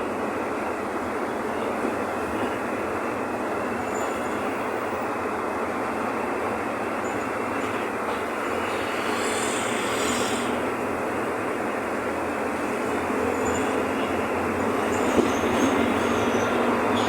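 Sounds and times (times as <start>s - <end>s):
bus diesel engine running: 0.0s - 17.0s
rolling road noise: 0.0s - 17.0s.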